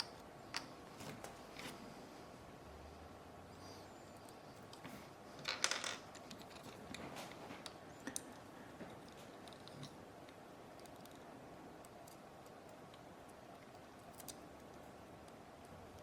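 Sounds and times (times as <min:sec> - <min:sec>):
rustle of handling parts: 0:00.0 - 0:02.0.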